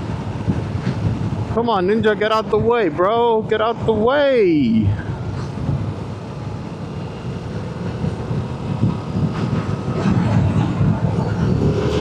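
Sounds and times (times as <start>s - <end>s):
wind noise: 0.0s - 12.0s
motorcycle engine rumble: 4.9s - 12.0s.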